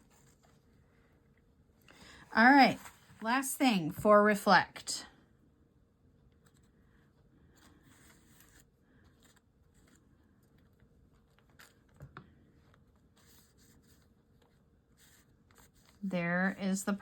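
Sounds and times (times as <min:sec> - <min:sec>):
paper rustling: 0:00.0 - 0:00.7, 0:02.5 - 0:03.2, 0:07.5 - 0:17.0.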